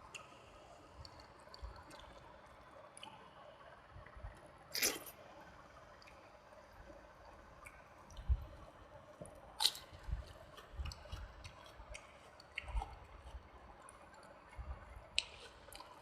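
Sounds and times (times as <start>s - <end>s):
chewing wet food: 4.7s - 5.2s, 9.3s - 16.0s
wet mouth clicks: 4.8s - 5.1s, 10.8s - 13.4s, 15.1s - 16.0s.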